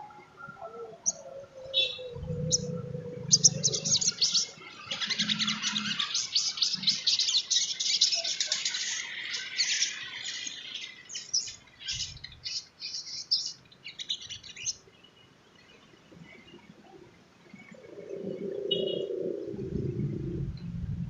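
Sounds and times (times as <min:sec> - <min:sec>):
sunbird chattering song: 0:01.0 - 0:14.8.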